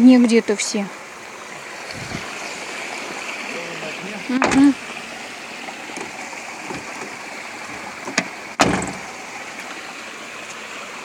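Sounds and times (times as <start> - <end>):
water running: 0.0 - 11.0
thump: 8.1 - 9.0.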